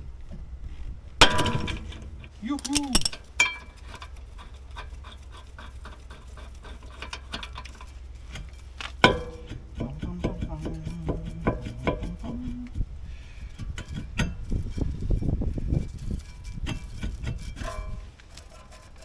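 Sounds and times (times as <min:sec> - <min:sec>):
loud ringing metallic clank: 0:01.2 - 0:03.8, 0:09.0 - 0:12.7
small metal clicks and knocks: 0:01.2 - 0:12.5, 0:13.5 - 0:14.9.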